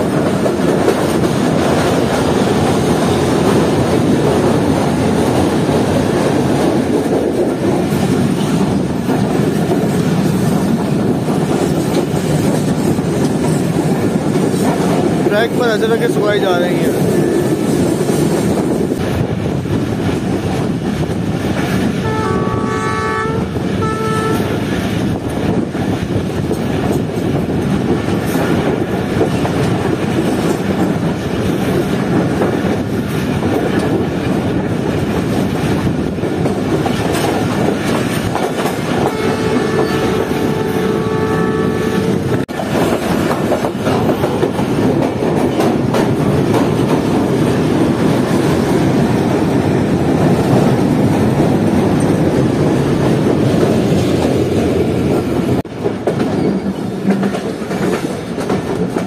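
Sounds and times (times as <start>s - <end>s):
train wheels clattering: 0.0s - 22.9s, 23.6s - 59.0s
train horn: 22.0s - 24.6s, 39.0s - 42.4s.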